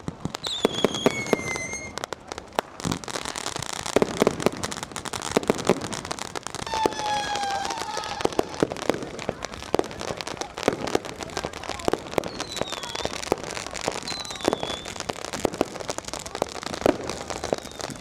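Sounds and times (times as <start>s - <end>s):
fireworks bangs and cracks: 0.0s - 18.0s
firework whistle: 0.4s - 2.1s, 6.6s - 9.0s, 12.2s - 13.2s, 14.0s - 15.1s, 17.2s - 18.0s.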